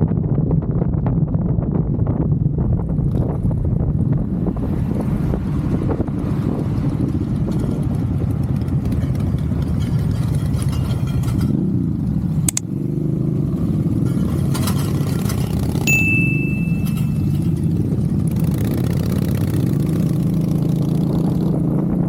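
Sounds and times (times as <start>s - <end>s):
motorcycle engine running: 2.0s - 22.0s
sharp click: 12.5s - 12.7s.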